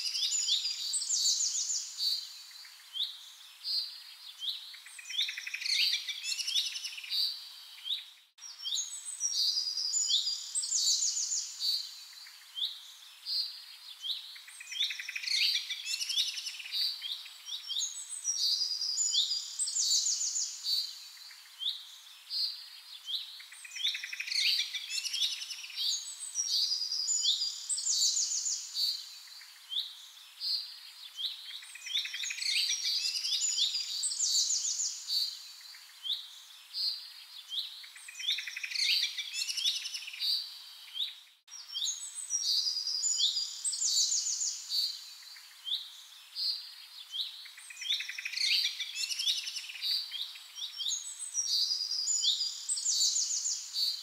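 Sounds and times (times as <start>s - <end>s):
birds chirping and trilling: 0.0s - 54.0s.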